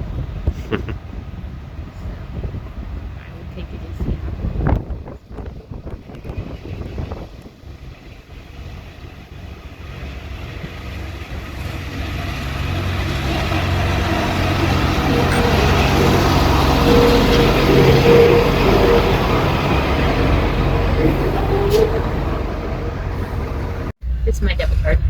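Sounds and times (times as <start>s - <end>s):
vehicle engine drone approaching: 1.5s - 25.0s
steady higher tone: 13.4s - 25.0s.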